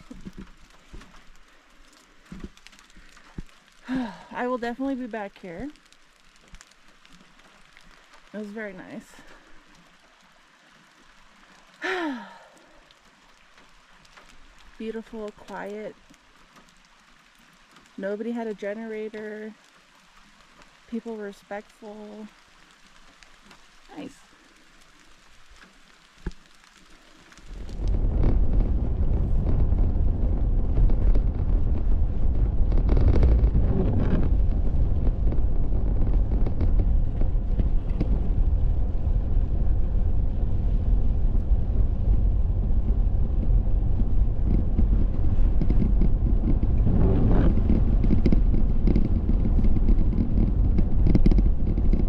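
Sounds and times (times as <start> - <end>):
wind and tyre hiss: 0.0 - 52.0
car engine and road rumble: 27.4 - 52.0.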